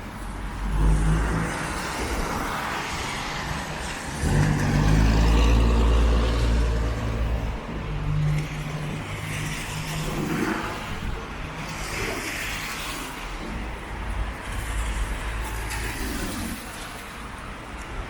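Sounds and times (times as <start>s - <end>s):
vehicle engine passing by: 4.2s - 7.6s.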